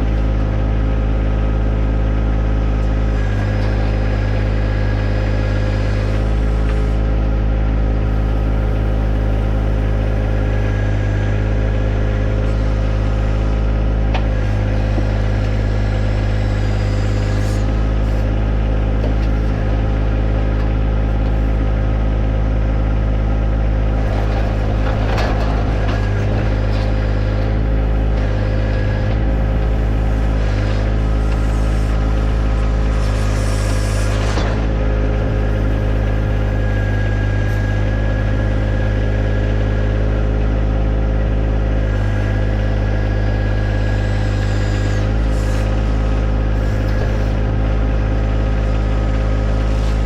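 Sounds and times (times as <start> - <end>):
tractor diesel engine running: 0.0 - 50.0
backhoe knocks and scrapes: 8.3 - 21.6, 23.9 - 39.4, 41.8 - 50.0.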